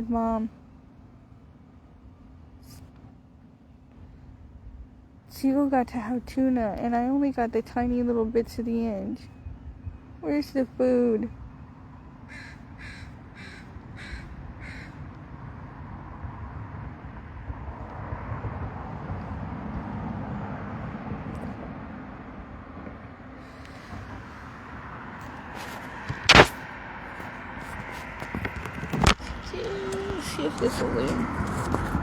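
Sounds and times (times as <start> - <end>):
gull harsh calls: 12.3 - 15.0
sharp knock: 26.1 - 26.6.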